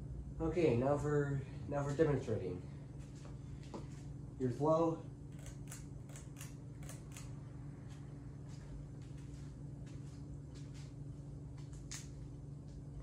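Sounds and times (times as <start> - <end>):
ceiling fan motor hum: 0.0 - 13.0
soft fan clicks: 10.6 - 13.0.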